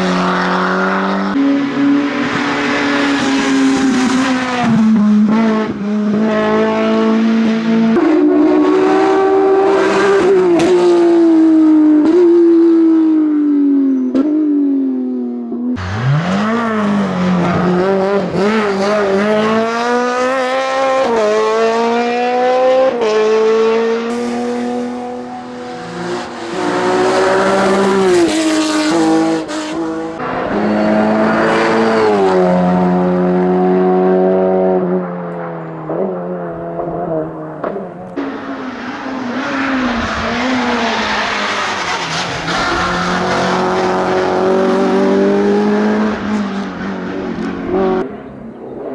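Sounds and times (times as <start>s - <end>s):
racing car engines revving: 0.0s - 48.9s.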